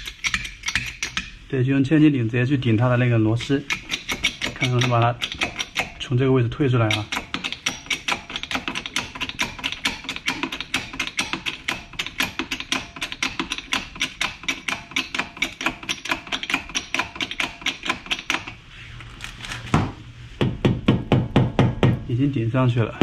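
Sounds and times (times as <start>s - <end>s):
jack clicking rapidly: 3.7s - 6.0s, 6.8s - 18.5s.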